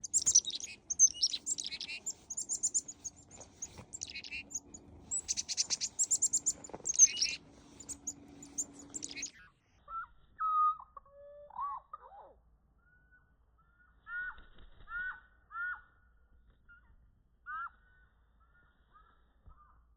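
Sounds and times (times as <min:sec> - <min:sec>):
chickadees calling: 0:00.0 - 0:09.3.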